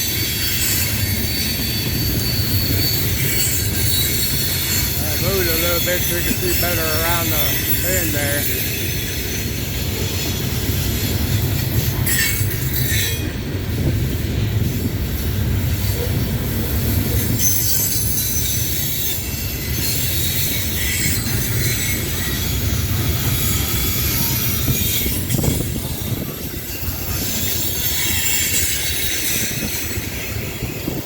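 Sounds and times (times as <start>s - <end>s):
high-pitched wheel squeal: 0.0s - 9.5s
train wheels rumbling on rail: 0.0s - 31.0s.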